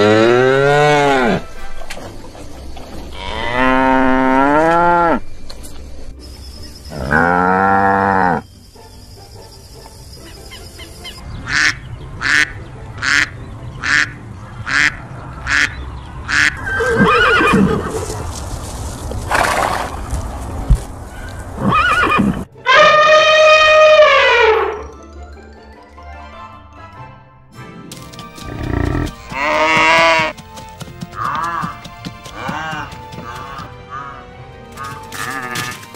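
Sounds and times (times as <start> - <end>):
cow mooing: 3.1 - 5.2, 7.0 - 8.4
horse whinnying: 16.6 - 18.1, 21.6 - 24.8
elephant trumpeting: 21.6 - 24.8.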